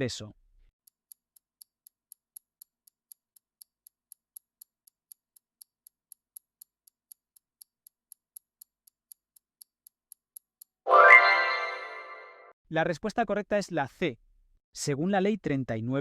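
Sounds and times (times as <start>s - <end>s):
high clock-like timer ticks: 0.8s - 10.8s.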